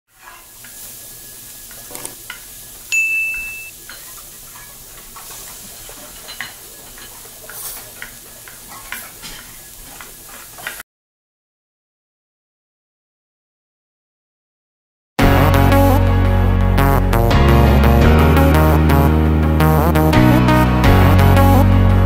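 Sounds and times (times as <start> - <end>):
frying sizzle with crackles: 0.1 - 10.8
high ding: 2.9 - 3.7.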